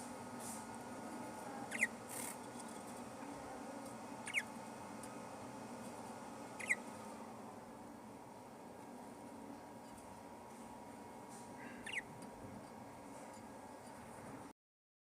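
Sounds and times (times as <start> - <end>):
low background hum: 0.0 - 14.5
budgerigar chirping: 1.7 - 2.0, 4.2 - 4.6, 6.6 - 6.9, 11.6 - 12.1.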